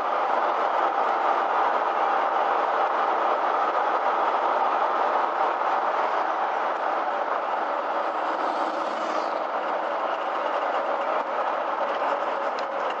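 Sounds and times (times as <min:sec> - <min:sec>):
engine and road noise drone: 0:06.2 - 0:13.0.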